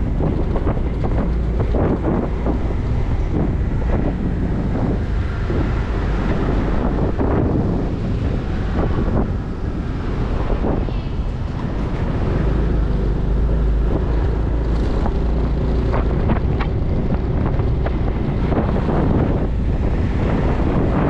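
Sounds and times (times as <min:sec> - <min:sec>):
road noise: 0:00.0 - 0:21.0
wind buffeting the microphone: 0:00.0 - 0:21.0
motorcycle engine: 0:11.5 - 0:20.2.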